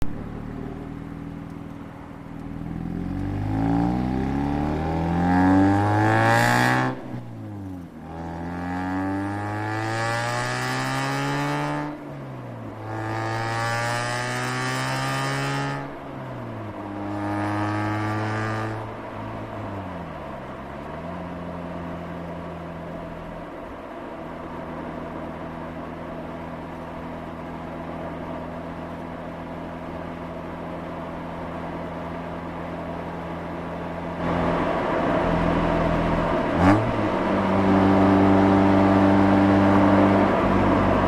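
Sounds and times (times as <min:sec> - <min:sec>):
rotary engine accelerating: 0:02.3 - 0:16.0, 0:16.7 - 0:20.3, 0:32.5 - 0:41.0.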